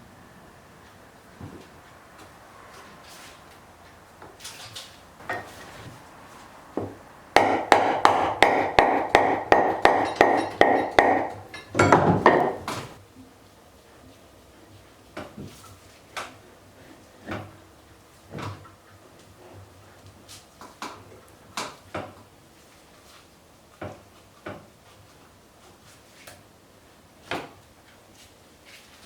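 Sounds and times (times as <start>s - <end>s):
hand tools knocking on metal: 5.2s - 5.8s, 6.8s - 13.0s.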